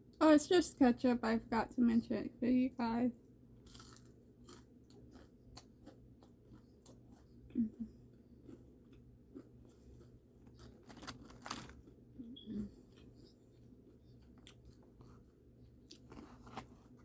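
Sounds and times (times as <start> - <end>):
crunching fried food: 3.4 - 12.2, 12.8 - 17.0.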